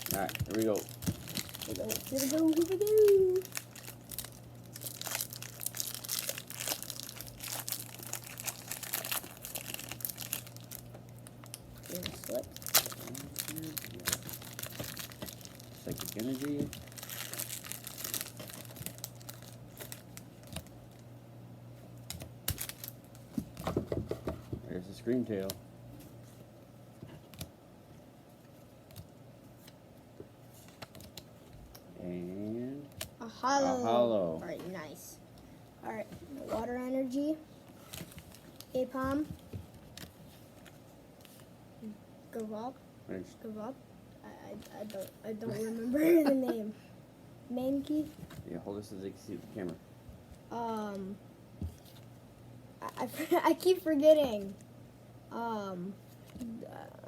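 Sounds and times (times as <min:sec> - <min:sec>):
foil wrapper crinkling and tearing: 0:00.0 - 0:21.0, 0:22.0 - 0:23.2.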